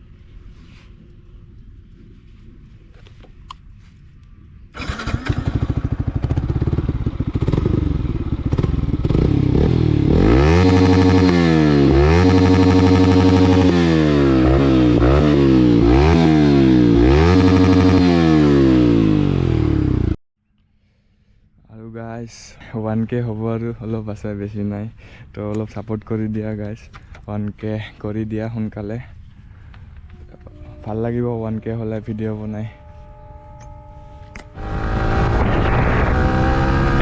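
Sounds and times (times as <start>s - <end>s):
motorcycle engine revving: 4.8s - 20.2s, 33.7s - 37.0s.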